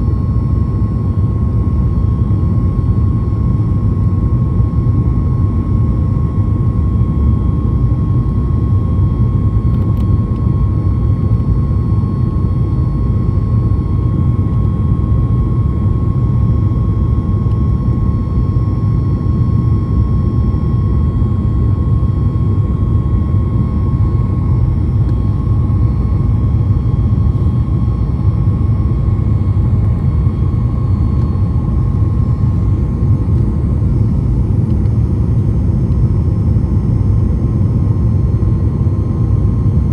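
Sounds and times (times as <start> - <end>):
jet engine cabin roar: 0.0 - 39.9
thin steady whine: 0.0 - 39.9.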